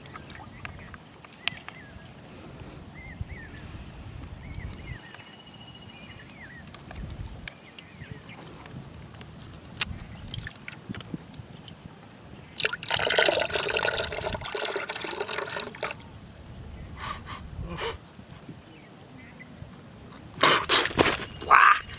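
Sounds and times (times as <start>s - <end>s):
water drips: 9.8s - 11.8s, 12.5s - 16.1s
water pouring and gurgling: 10.2s - 11.8s, 12.5s - 16.1s.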